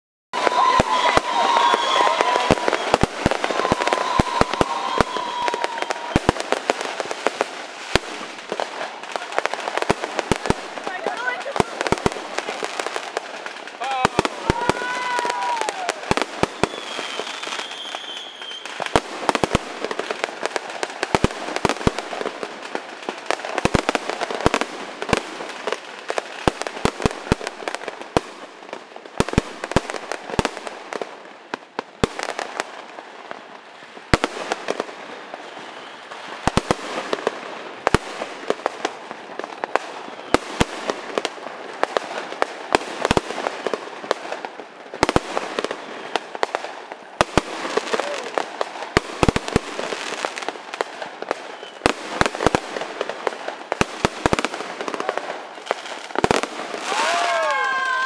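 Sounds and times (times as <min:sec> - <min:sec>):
high firework whistle: 0:00.4 - 0:06.5, 0:14.4 - 0:18.8, 0:35.4 - 0:36.2, 0:39.9 - 0:40.5, 0:51.4 - 0:51.9
firecracker crackle: 0:00.4 - 0:58.0
firework bangs: 0:00.4 - 0:58.0.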